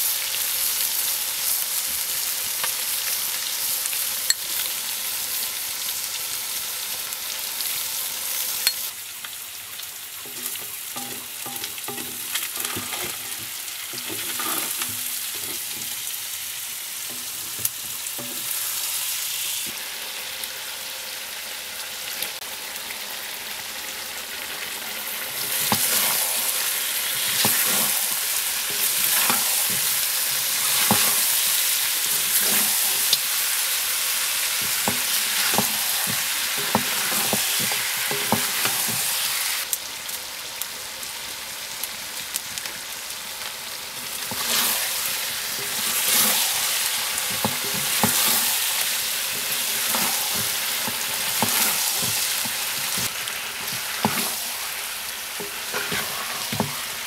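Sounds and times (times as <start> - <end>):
food sizzling in a pan: 0.0 - 57.0
wooden spatula scraping: 10.2 - 16.1, 25.3 - 33.5, 34.4 - 39.4, 44.0 - 54.8, 55.4 - 57.0.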